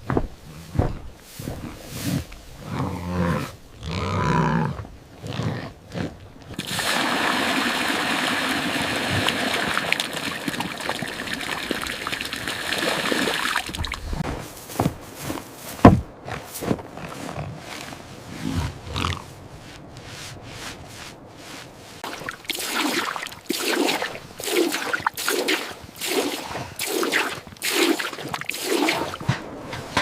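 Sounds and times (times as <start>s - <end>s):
cow lowing: 0.5s - 6.5s, 16.2s - 19.5s
rushing water-like noise: 6.5s - 14.2s, 22.0s - 29.3s.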